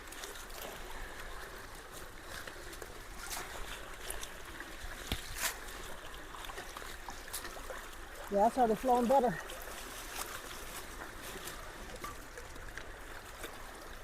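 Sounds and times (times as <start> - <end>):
creek water flowing through culvert: 0.0 - 14.0
sharp knocks or splashes: 5.0 - 5.8.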